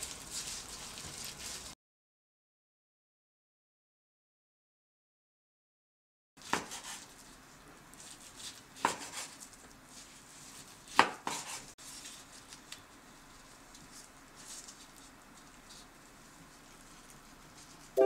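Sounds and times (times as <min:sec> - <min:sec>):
rustling: 0:00.0 - 0:01.8, 0:11.8 - 0:18.0.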